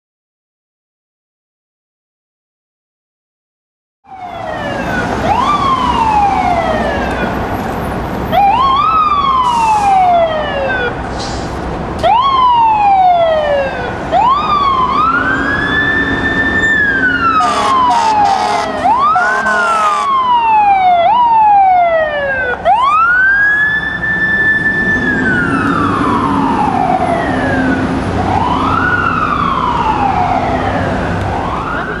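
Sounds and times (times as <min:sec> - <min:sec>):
fire engine siren: 0:04.0 - 0:11.1, 0:12.0 - 0:32.0
steady horn blast: 0:17.4 - 0:20.2.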